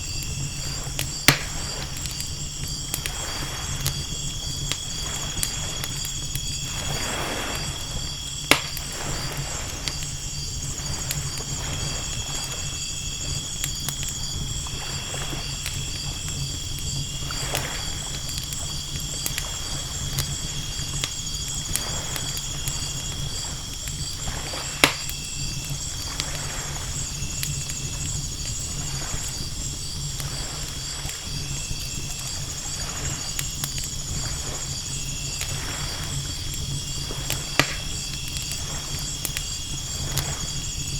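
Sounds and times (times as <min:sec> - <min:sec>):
campfire crackling: 0:00.0 - 0:40.9
campfire pops: 0:00.0 - 0:40.9
night insects chirring: 0:00.0 - 0:40.9
ocean waves washing in: 0:03.1 - 0:13.1.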